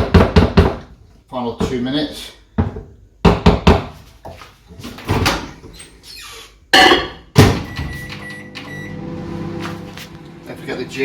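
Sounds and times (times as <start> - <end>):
microwave running hum: 7.4 - 11.0.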